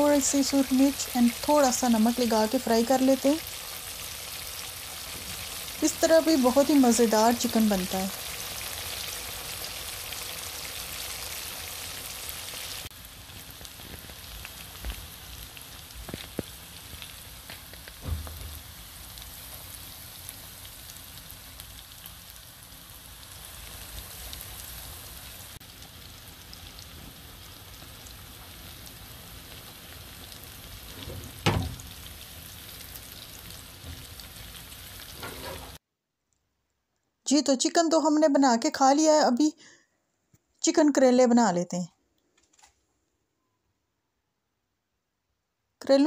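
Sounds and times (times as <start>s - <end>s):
chicken frying in hot oil: 0.0s - 35.8s.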